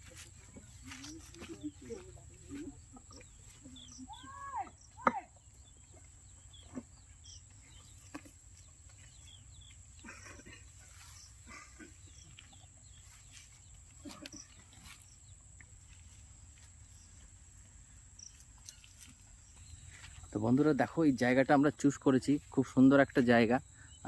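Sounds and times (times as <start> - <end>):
farm animal calls: 0.0 - 15.5
distant bird calls: 0.0 - 20.9.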